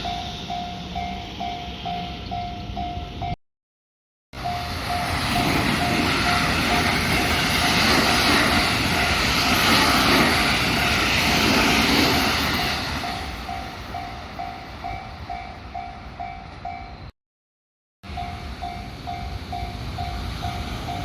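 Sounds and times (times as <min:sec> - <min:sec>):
level-crossing warning bell dinging: 0:00.0 - 0:03.4, 0:04.4 - 0:17.2, 0:18.0 - 0:21.0
train wheels rushing on rails: 0:04.4 - 0:17.1, 0:18.1 - 0:21.0.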